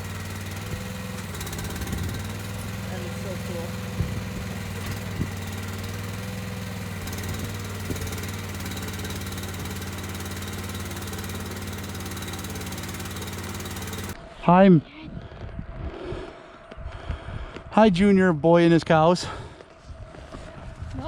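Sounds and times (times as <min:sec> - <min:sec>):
engine humming steadily: 0:00.0 - 0:14.3.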